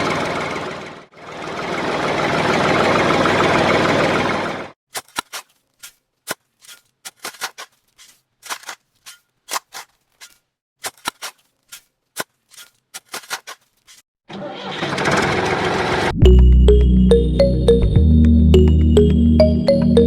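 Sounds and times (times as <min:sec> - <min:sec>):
small tractor motor running: 0:00.0 - 0:04.7, 0:14.3 - 0:16.1.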